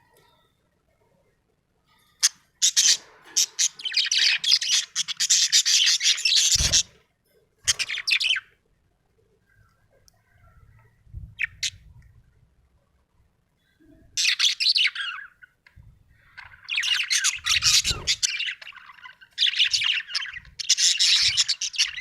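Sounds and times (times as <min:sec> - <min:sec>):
budgerigar chirping: 0:16.4 - 0:22.0.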